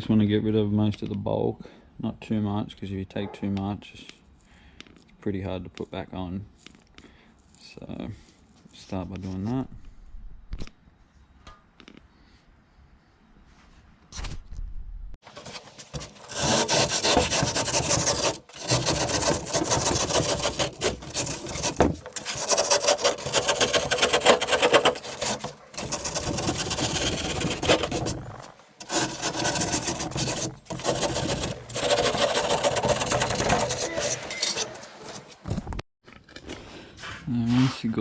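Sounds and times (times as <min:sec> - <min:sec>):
sandpaper scraping foam: 0:15.2 - 0:35.5.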